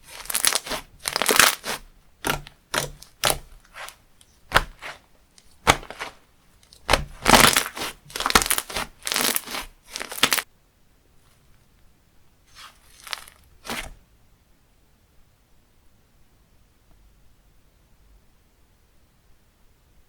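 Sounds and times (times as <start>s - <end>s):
slime crunching and crackling: 0.0s - 10.4s, 12.5s - 14.0s.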